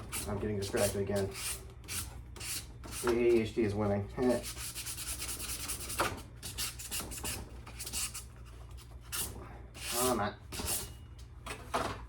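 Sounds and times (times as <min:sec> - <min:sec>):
sandpaper rubbing on metal: 0:00.0 - 0:03.3, 0:04.3 - 0:08.3, 0:09.1 - 0:10.9.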